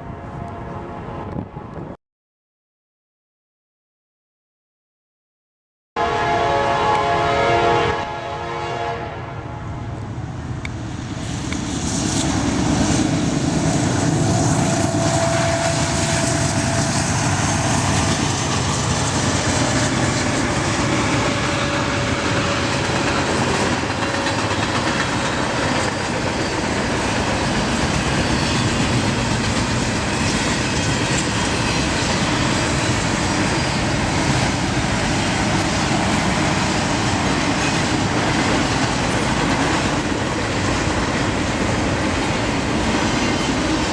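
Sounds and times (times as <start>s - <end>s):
diesel train horn chord: 0.0s - 1.8s, 6.0s - 10.1s, 14.2s - 18.1s
train wheels rumbling on rail: 6.0s - 43.9s.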